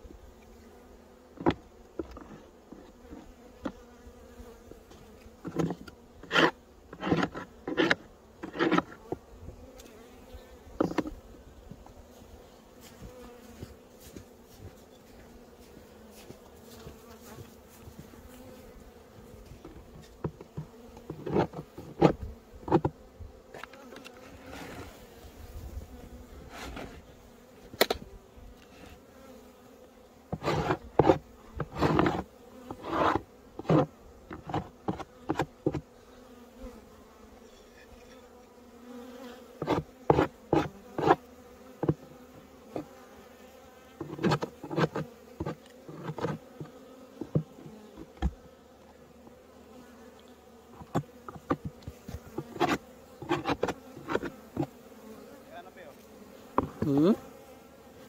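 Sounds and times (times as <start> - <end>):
bees buzzing: 0.0 - 58.0.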